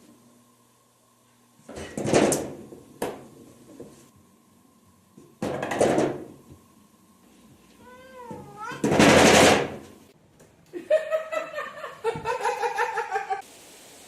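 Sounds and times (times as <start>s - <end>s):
cat meowing: 7.8s - 8.9s.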